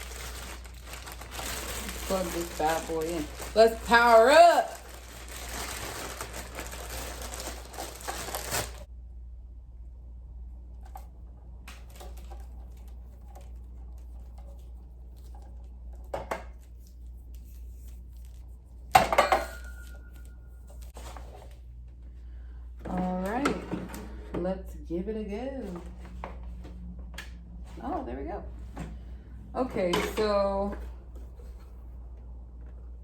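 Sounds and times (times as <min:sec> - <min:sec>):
loud rustling: 0:00.0 - 0:08.9.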